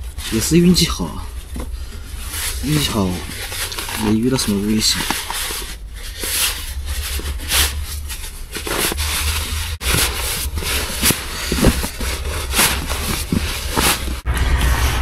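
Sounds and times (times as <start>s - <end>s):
camping gear rustling and scraping: 0.0s - 14.3s
steady low rumble: 0.0s - 15.0s.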